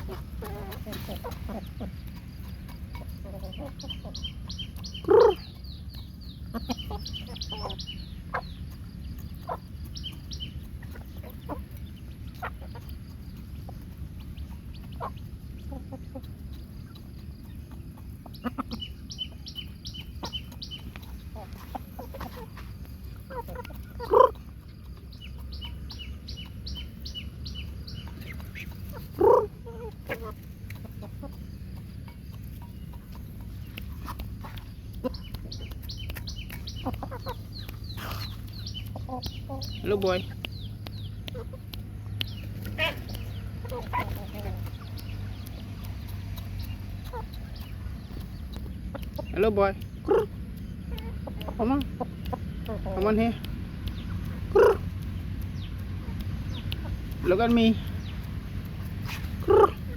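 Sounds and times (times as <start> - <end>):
chickens clucking: 0.0 - 59.9
chicken squawks: 5.0 - 5.5, 21.4 - 24.6, 28.3 - 31.4, 42.6 - 44.8, 54.5 - 54.9, 59.0 - 59.9.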